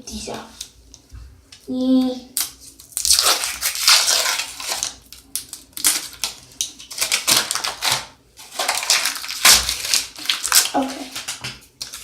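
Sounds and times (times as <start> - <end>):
paper rustling and clicking: 2.4 - 12.0.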